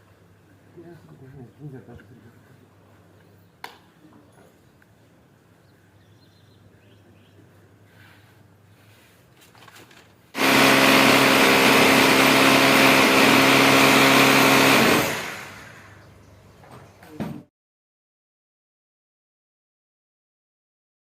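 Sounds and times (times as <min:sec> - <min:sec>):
electric motor tool running: 0:10.4 - 0:16.0.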